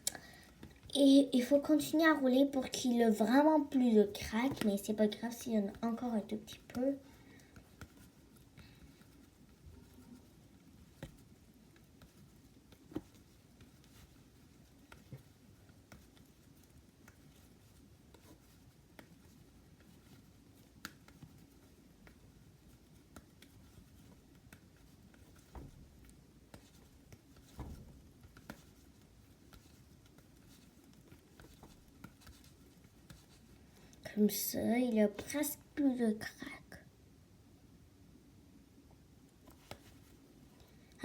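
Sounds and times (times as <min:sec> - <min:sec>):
soft taps and rubbing of slime: 0:00.5 - 0:36.7, 0:38.9 - 0:40.4.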